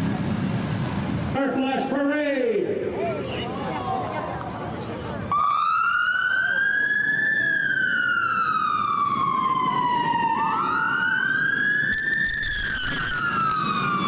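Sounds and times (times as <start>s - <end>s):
police sirens wailing: 5.2s - 14.0s.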